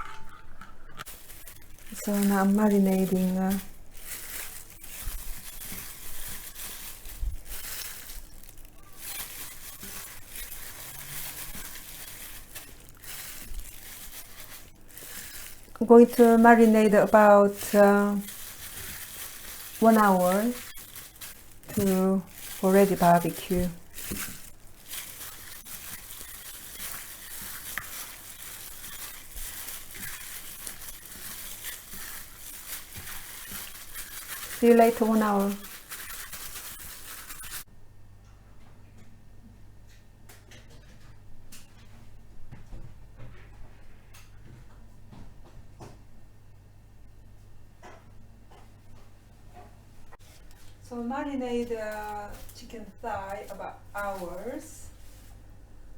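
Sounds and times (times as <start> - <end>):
hands squishing wet marinade: 1.0 - 37.7
rustling and crinkling: 1.0 - 37.7, 50.0 - 55.5.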